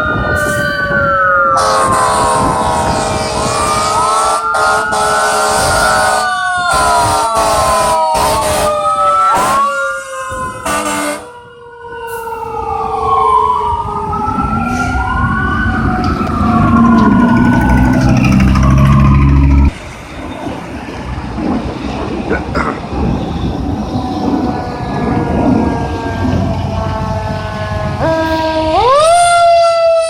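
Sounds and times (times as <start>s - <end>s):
sirens wailing: 0.0s - 30.0s
loud low blare: 14.8s - 19.8s.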